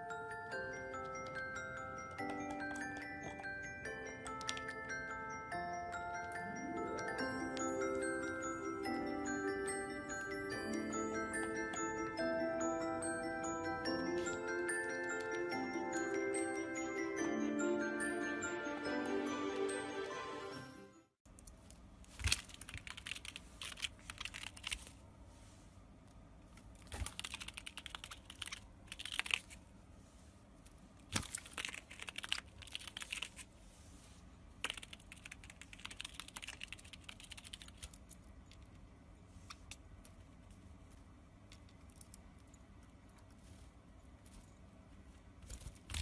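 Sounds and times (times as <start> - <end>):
parrot crunching with beak: 21.4 - 24.9, 26.7 - 29.6, 31.1 - 33.5.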